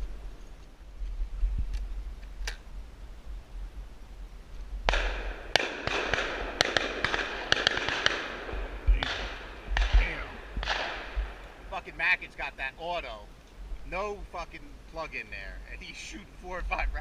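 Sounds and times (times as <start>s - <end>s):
shotgun shots: 4.9s - 11.7s.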